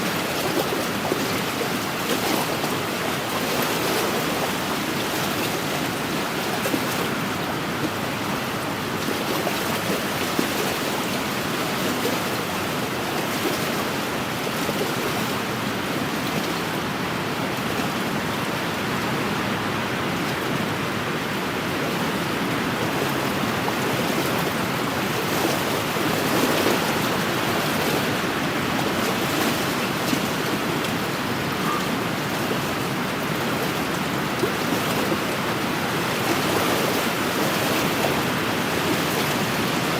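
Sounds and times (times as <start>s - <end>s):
small waves lapping on shore: 0.0s - 39.9s.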